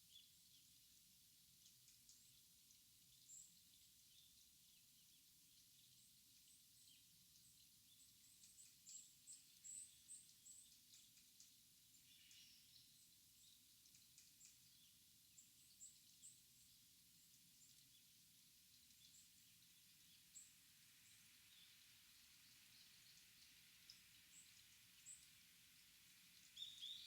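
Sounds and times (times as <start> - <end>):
faint steady hiss: 0.0 - 27.0
small birds chirping: 0.0 - 27.0.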